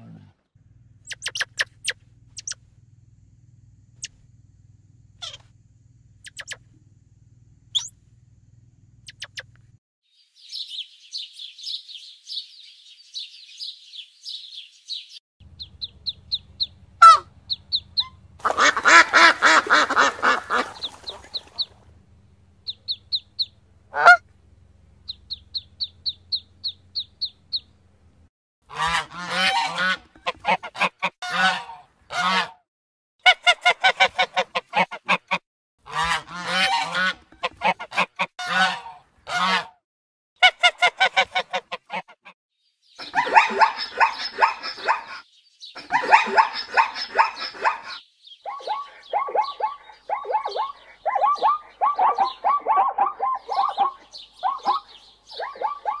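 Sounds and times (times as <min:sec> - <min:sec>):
ducklings peeping: 0:01.1 - 0:02.6, 0:05.2 - 0:05.4, 0:06.3 - 0:06.6, 0:09.1 - 0:09.5, 0:10.4 - 0:21.8, 0:22.6 - 0:24.2, 0:25.0 - 0:27.8, 0:28.7 - 0:32.5, 0:35.9 - 0:39.7, 0:42.9 - 0:56.0
geese honking: 0:15.6 - 0:21.8, 0:22.7 - 0:24.2, 0:28.7 - 0:32.6, 0:33.3 - 0:39.7, 0:40.4 - 0:42.3, 0:43.0 - 0:45.2, 0:45.8 - 0:48.0, 0:48.6 - 0:56.0.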